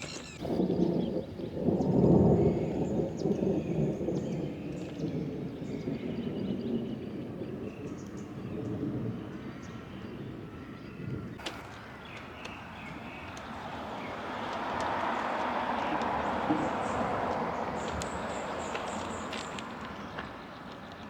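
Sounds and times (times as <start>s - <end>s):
small birds chirping: 0.0s - 2.9s, 10.9s - 21.0s.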